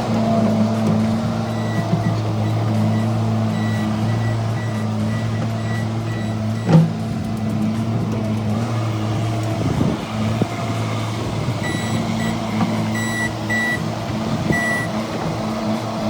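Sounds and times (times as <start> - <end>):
loader engine running: 0.0 - 16.0
reverse alarm beeping: 0.4 - 7.6, 11.6 - 13.9, 14.5 - 15.0.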